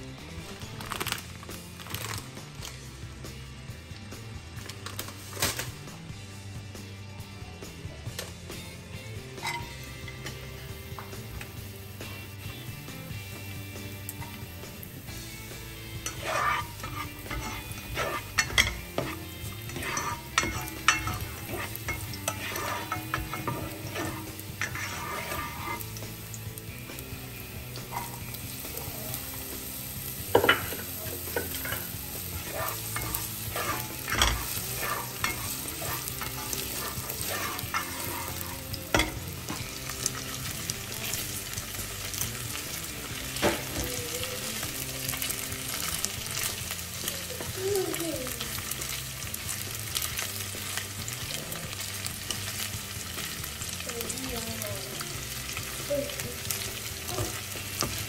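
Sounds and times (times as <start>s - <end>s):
meatballs sizzling in oil: 8.4s - 58.0s
spatula stirring in a pan: 9.4s - 10.3s, 14.1s - 47.6s, 54.9s - 58.0s.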